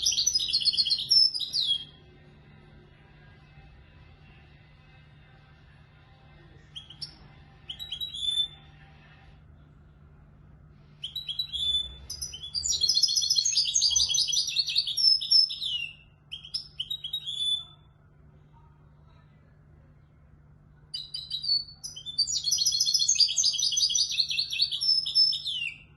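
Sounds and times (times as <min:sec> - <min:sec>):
goldfinch singing: 0:00.0 - 0:02.0, 0:06.8 - 0:08.6, 0:11.0 - 0:17.8, 0:21.0 - 0:25.8.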